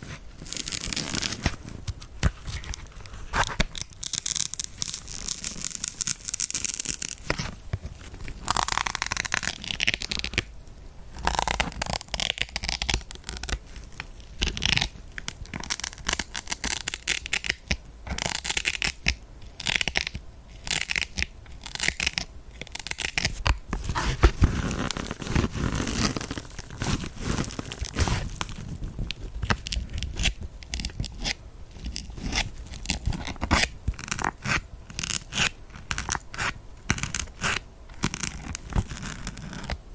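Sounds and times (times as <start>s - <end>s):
needles scratching a sponge: 22.8s - 28.8s, 29.5s - 39.8s.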